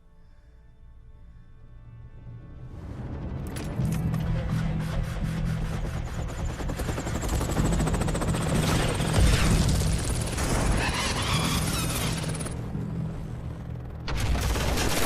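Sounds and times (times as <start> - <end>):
helicopter turbine whine: 3.0 - 15.0
helicopter rotor chop: 3.5 - 15.0.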